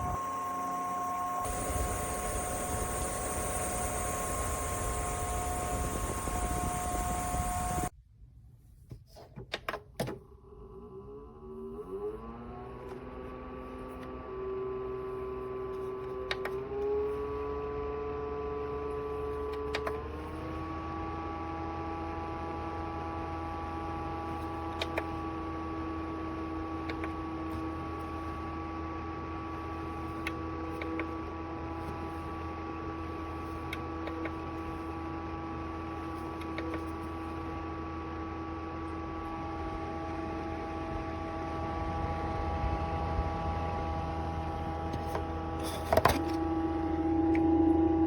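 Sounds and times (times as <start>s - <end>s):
electric fan motor humming: 0.0s - 7.9s
loud steady hiss: 0.0s - 7.9s.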